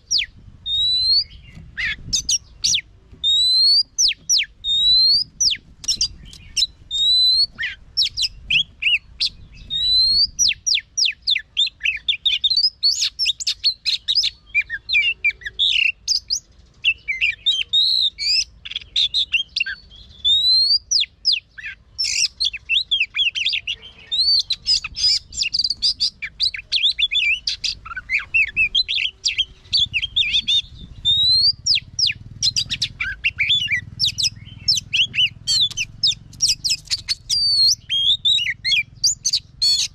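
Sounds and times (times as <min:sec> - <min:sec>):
bird singing varied song: 0:00.0 - 0:39.9.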